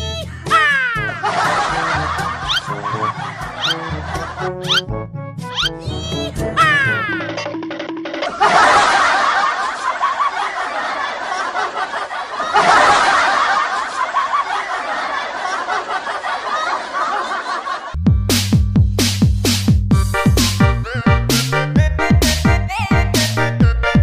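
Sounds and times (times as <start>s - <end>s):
canned laugh track: 0.1s - 4.9s, 5.6s - 18.0s, 20.7s - 21.5s.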